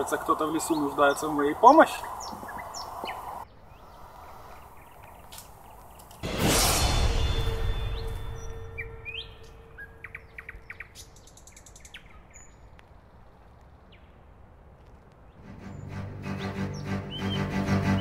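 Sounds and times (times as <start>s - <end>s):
wild birds chirping and whistling: 0.0s - 6.0s, 7.2s - 12.6s, 15.3s - 18.0s.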